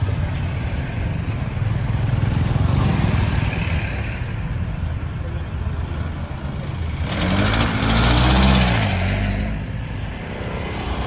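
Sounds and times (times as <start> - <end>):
steady traffic noise: 0.0 - 11.0
tyre and road noise: 0.0 - 11.0
vehicle engine passing: 6.8 - 11.0.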